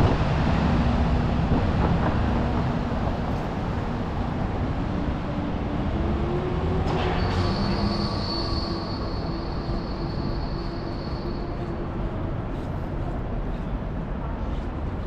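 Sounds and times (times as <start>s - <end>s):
rumble of city traffic: 0.0s - 15.0s
high-pitched metallic squeal: 6.8s - 12.0s.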